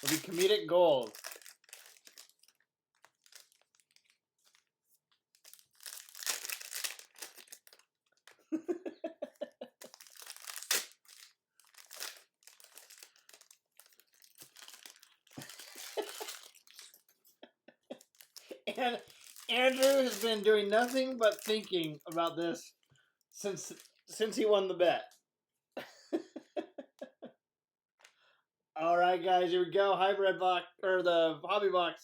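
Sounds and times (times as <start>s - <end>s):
plastic wrapping crinkling and tearing: 0.0s - 8.5s, 9.7s - 17.1s, 17.9s - 22.5s, 23.4s - 24.2s.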